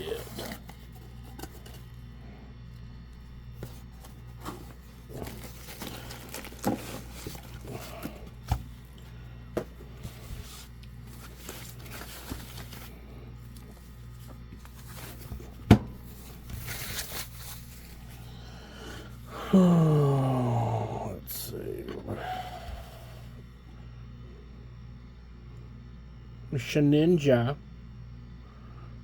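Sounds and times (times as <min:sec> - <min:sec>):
packaging handled by hand: 0:00.0 - 0:18.2
low steady hum: 0:00.0 - 0:29.0.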